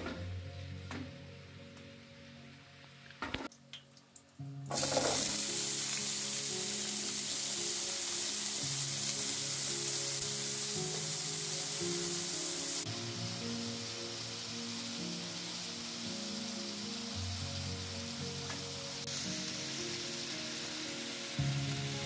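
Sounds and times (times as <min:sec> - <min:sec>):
potatoes sizzling in oil: 0:04.0 - 0:22.0.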